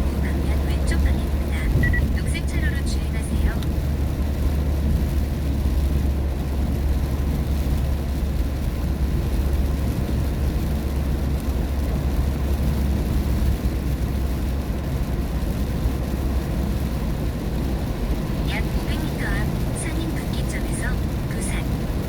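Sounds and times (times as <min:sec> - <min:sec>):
car engine: 0:00.0 - 0:22.0
tyre noise on wet road: 0:03.6 - 0:19.8.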